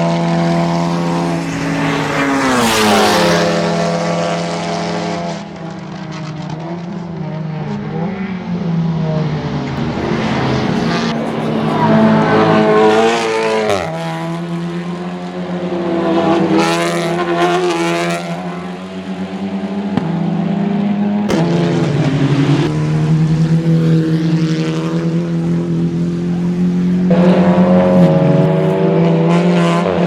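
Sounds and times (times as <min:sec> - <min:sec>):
race car engines revving: 0:00.0 - 0:30.0.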